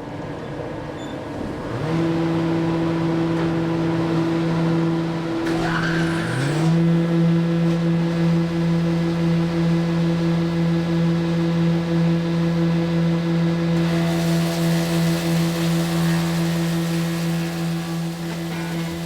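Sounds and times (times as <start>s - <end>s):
electric motors humming: 13.0s - 19.0s.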